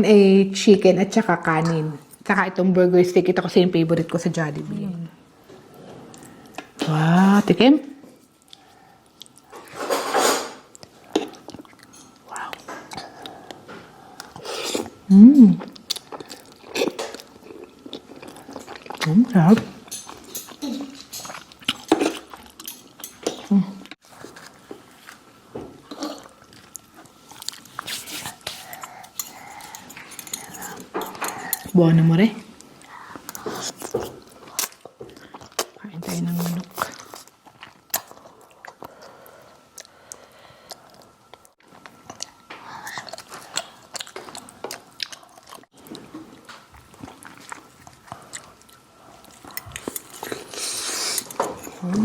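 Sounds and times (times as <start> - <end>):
wet chewing and mouth smacks: 15.6 - 19.1, 39.7 - 51.4.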